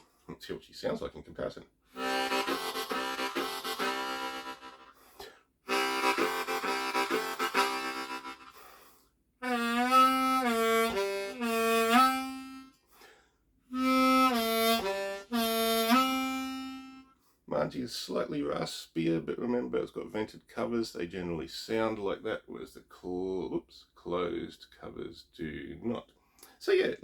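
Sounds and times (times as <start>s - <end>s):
harmonica playing: 1.9s - 8.8s, 9.4s - 12.8s, 13.7s - 17.2s.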